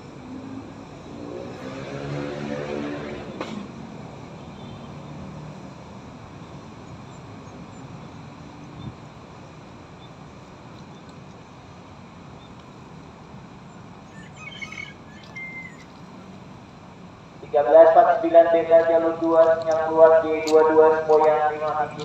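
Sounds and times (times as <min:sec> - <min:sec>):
railway station hum: 0:00.0 - 0:22.0
birds chirping: 0:13.6 - 0:16.4, 0:19.0 - 0:22.0.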